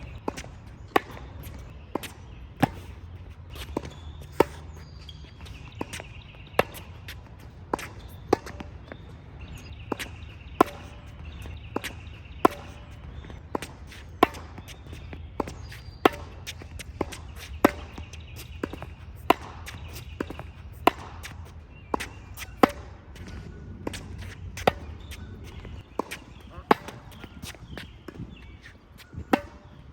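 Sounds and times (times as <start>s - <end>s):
tennis ball hit by racket: 0.0s - 29.9s.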